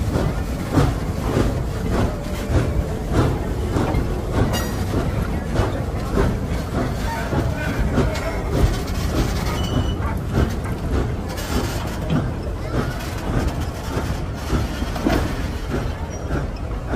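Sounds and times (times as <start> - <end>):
train wheels rumbling on track: 0.0 - 16.9.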